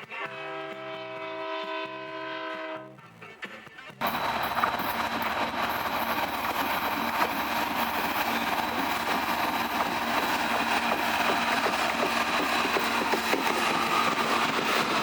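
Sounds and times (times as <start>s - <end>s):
diesel locomotives droning: 4.0s - 15.0s.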